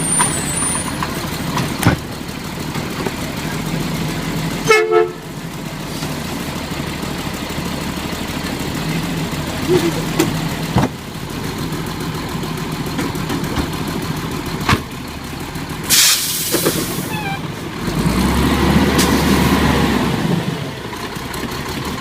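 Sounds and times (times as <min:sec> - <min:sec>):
diesel engine idling and revving: 0:00.0 - 0:22.0
air hiss: 0:15.9 - 0:17.1.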